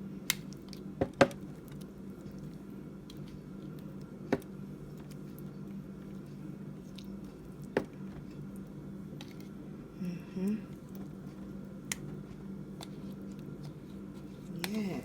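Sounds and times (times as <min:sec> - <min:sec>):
wet squishing of brushed sauce: 0:00.5 - 0:09.6.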